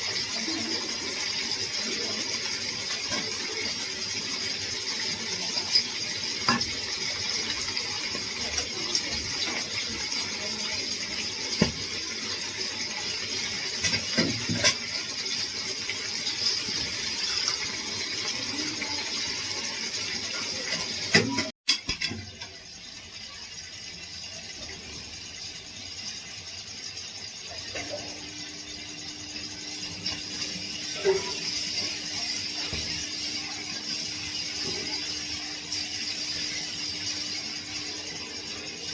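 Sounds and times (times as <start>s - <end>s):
chicken sizzling in a pot: 0.0s - 38.9s.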